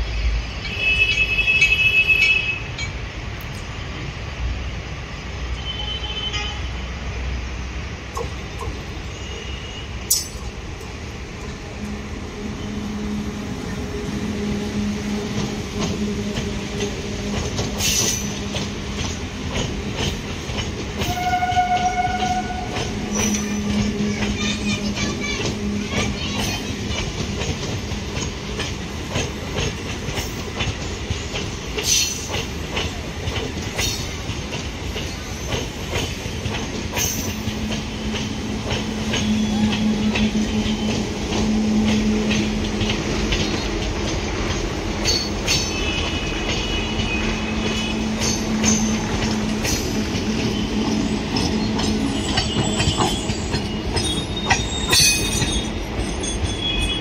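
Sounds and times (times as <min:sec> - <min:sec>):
train rumbling and clacking: 0:00.0 - 0:57.0
high wheel squeals: 0:45.1 - 0:57.0.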